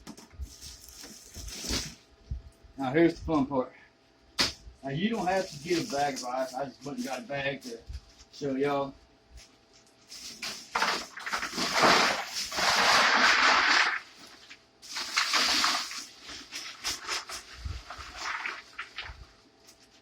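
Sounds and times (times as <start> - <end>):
ice pouring into tub: 10.6 - 16.2, 16.9 - 19.2.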